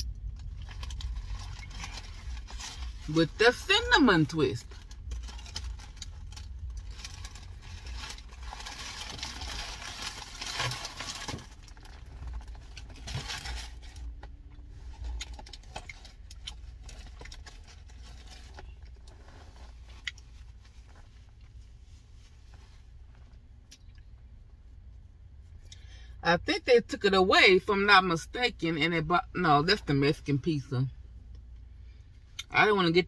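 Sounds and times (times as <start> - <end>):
steady low rumble: 0.0 - 33.0
crunching crispy snack: 4.6 - 14.1.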